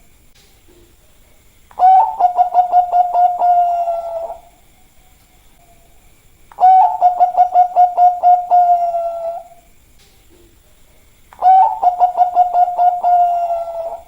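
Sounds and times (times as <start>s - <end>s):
dove cooing: 1.7s - 4.6s, 6.5s - 9.7s, 11.4s - 14.0s.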